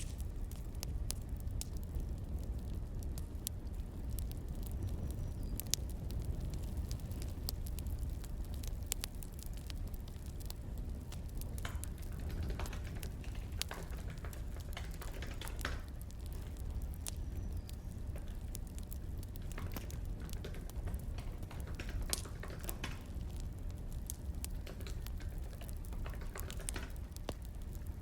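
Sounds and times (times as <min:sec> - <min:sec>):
wood fire crackling and popping: 0:00.0 - 0:28.0.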